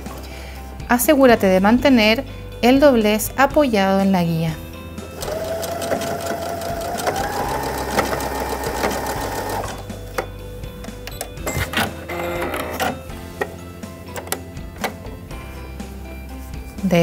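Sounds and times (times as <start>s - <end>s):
sewing machine motor whine: 5.2s - 9.8s.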